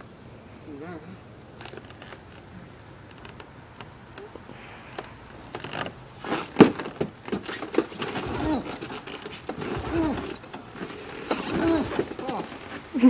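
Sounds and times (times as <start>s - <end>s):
starter pull whirs: 0.8s - 13.0s
recoil starter clacks and knocks: 1.4s - 13.0s.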